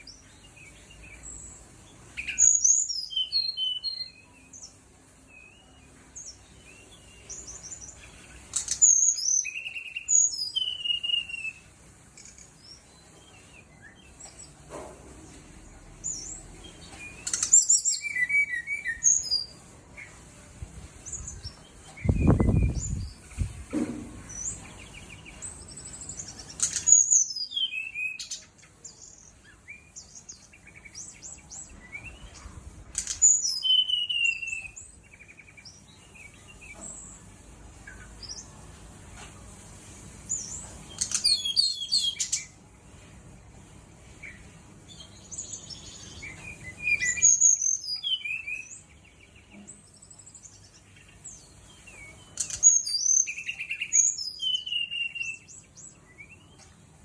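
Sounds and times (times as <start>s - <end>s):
flycatcher singing: 21.1s - 23.4s.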